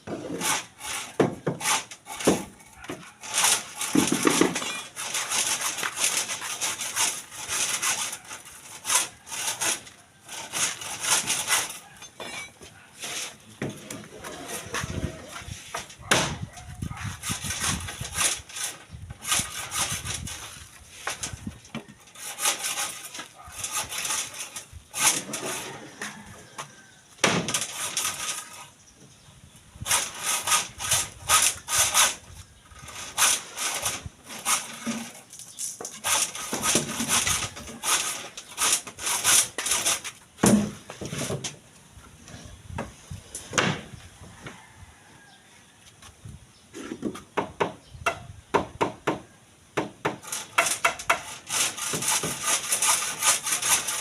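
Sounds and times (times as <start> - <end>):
back-and-forth scraping strokes: 0.0 - 16.1, 16.7 - 26.9, 27.5 - 28.8, 29.8 - 41.4, 50.2 - 54.0.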